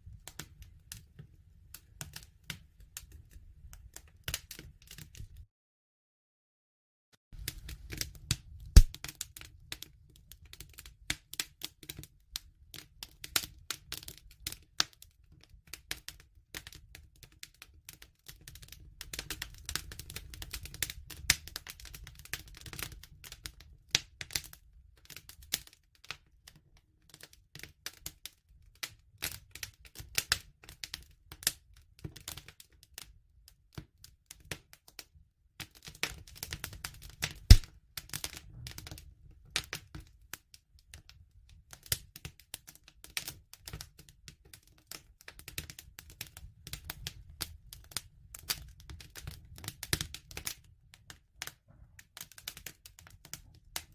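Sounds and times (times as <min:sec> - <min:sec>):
wood fire crackling: 0:00.1 - 0:05.4, 0:07.4 - 0:26.2, 0:35.6 - 0:53.9.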